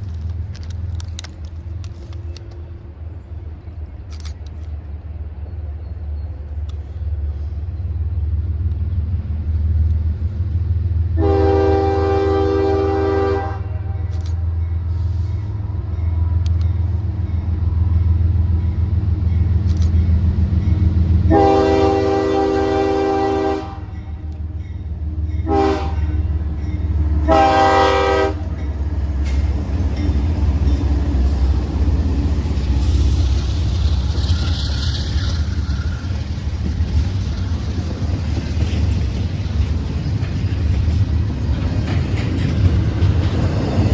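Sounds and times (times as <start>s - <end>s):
locomotive engine rumble: 0.0s - 43.9s
locomotive horn: 11.1s - 15.4s, 21.2s - 24.4s, 25.4s - 26.5s, 27.2s - 28.6s.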